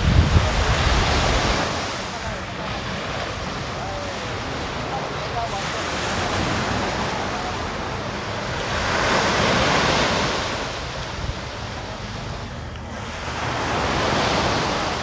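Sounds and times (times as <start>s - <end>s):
wind buffeting microphone: 0.0s - 4.5s
sea waves washing onto beach: 0.0s - 15.0s.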